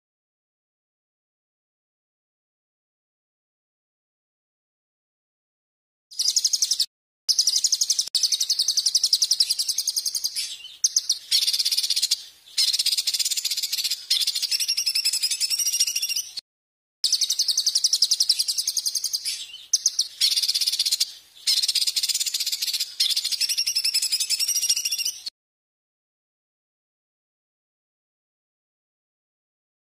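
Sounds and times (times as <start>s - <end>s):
songbird chattering trill: 6.2s - 16.4s, 17.0s - 25.3s.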